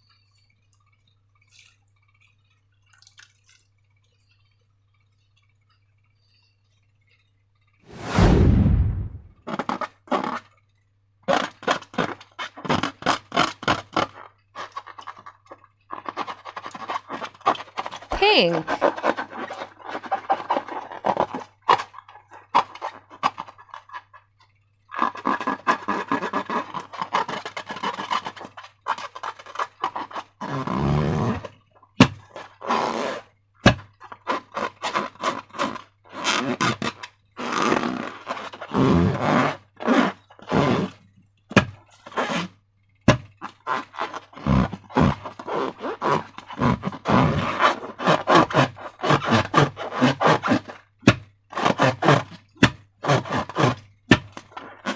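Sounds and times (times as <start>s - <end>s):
slime squishing and scraping: 11.3s - 24.3s, 25.0s - 42.5s, 43.1s - 54.9s.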